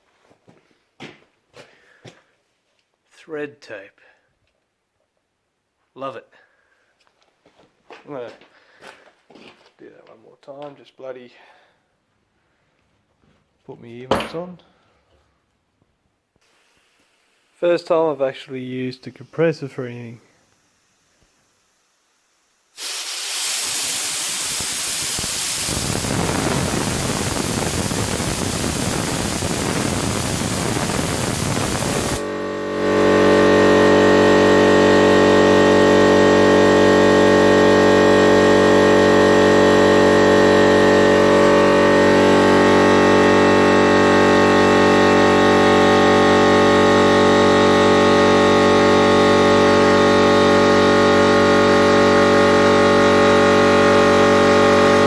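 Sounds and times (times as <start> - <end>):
compressed air hissing: 16.4 - 17.5, 20.2 - 32.3
air compressor motor running: 22.7 - 55.0.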